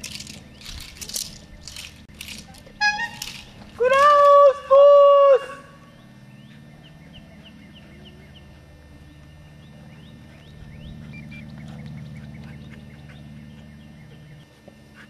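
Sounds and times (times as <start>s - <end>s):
low steady drone: 0.0s - 15.0s
small birds chirping: 5.8s - 14.8s.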